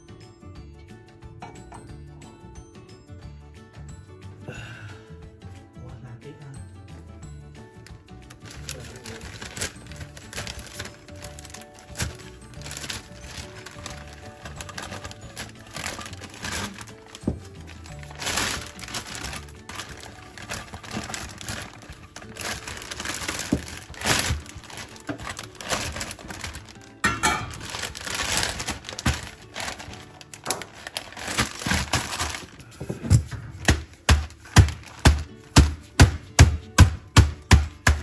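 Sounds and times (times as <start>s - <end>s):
plastic bag crinkling: 8.3s - 32.9s, 33.6s - 35.8s
heavy thumps pounding: 22.4s - 26.6s, 32.9s - 38.0s.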